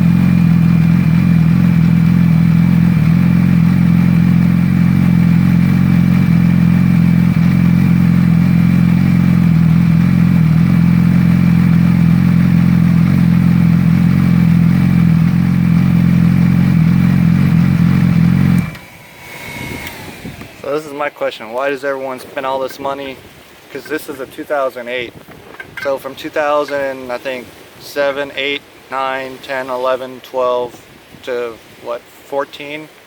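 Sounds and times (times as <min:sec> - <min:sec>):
motorcycle engine idling loudly: 0:00.0 - 0:18.8.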